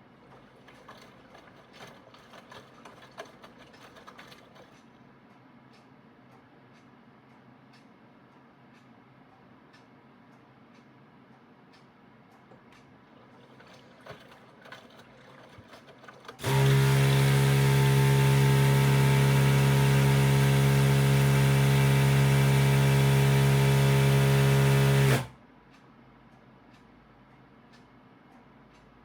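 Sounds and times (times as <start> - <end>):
washing machine humming: 0.0 - 5.2, 12.4 - 25.4.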